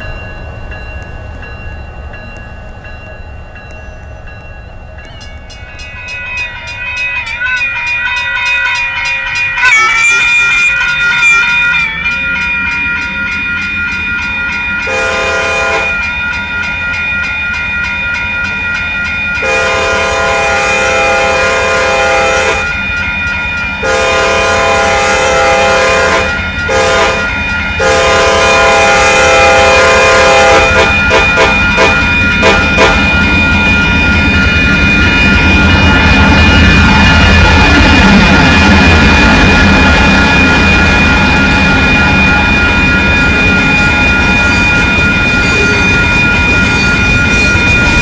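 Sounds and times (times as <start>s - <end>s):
train rumble: 0.0s - 48.0s
rail clicking: 0.2s - 14.9s
locomotive horn blasts: 9.6s - 11.8s, 14.8s - 16.0s, 19.4s - 22.8s, 23.8s - 33.2s.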